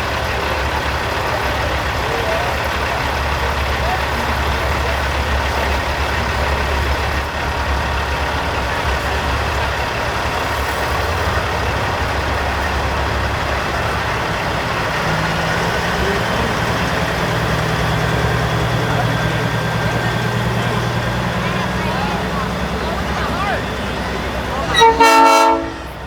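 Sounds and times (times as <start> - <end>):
crowd and street noise: 0.0 - 26.0
diesel trucks idling: 0.0 - 26.0.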